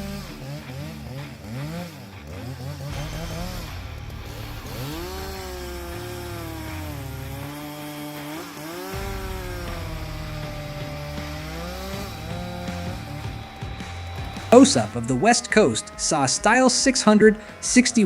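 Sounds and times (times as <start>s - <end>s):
chainsaw cutting through log: 0.0s - 18.0s.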